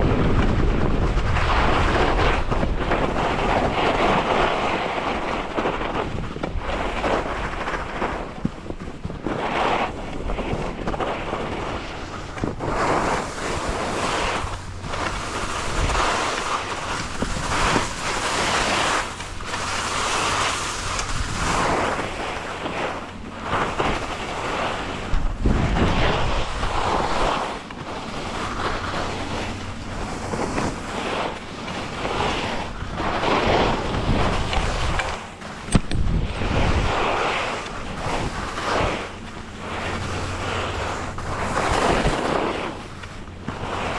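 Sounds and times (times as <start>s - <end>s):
wind rushing over microphone: 0.0s - 43.9s
skis hissing on snow: 9.2s - 43.9s.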